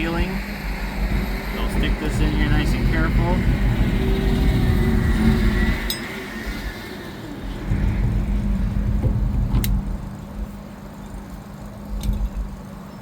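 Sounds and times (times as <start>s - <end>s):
wind buffeting the microphone: 0.0s - 12.8s
steady low hum: 0.0s - 13.0s.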